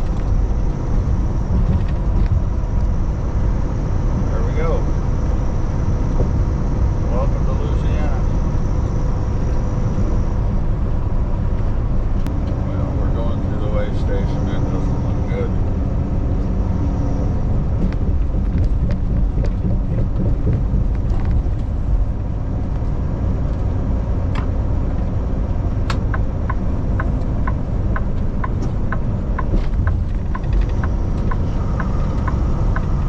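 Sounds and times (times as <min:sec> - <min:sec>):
truck engine and road noise: 0:00.0 - 0:33.0
turn signal ticking: 0:17.7 - 0:22.0, 0:25.5 - 0:33.0.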